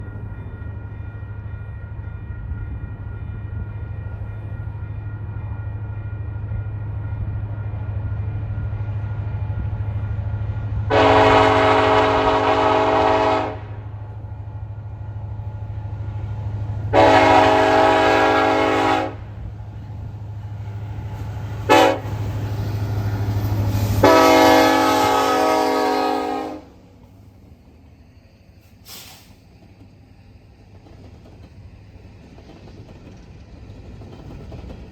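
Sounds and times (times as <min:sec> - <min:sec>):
diesel locomotive engine rumble: 0:00.0 - 0:34.9
train air horn: 0:10.9 - 0:14.0, 0:16.9 - 0:19.4, 0:21.7 - 0:22.2, 0:23.8 - 0:27.0.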